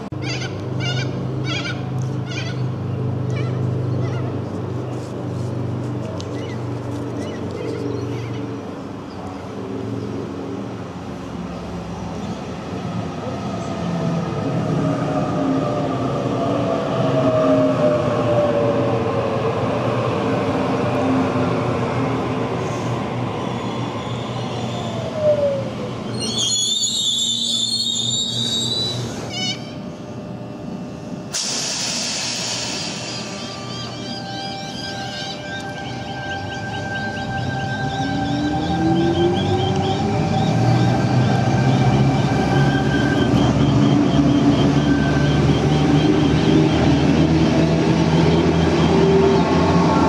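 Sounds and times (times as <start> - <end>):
electric train whine: 0.0 - 50.0
high steady squealing tones: 23.5 - 30.0, 31.5 - 50.0.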